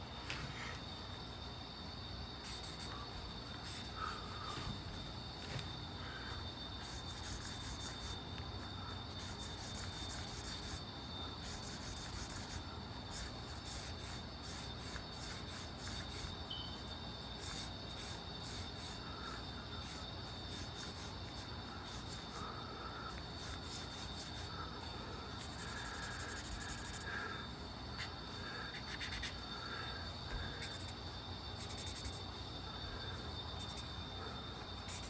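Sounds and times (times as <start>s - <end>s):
faint high whine: 0.0s - 35.0s
drawing tool scratching: 6.8s - 8.2s, 9.2s - 10.8s, 11.4s - 16.4s, 25.4s - 27.0s, 28.7s - 29.4s, 31.6s - 32.2s.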